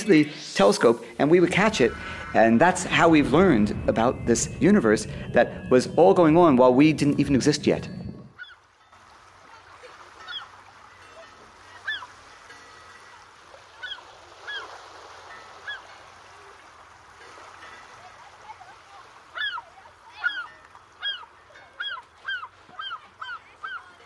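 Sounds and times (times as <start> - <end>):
faint steady background wash: 0.0 - 8.4
birds honking calls: 8.2 - 8.7, 10.2 - 10.6, 11.6 - 12.2, 13.8 - 14.8, 19.3 - 24.0.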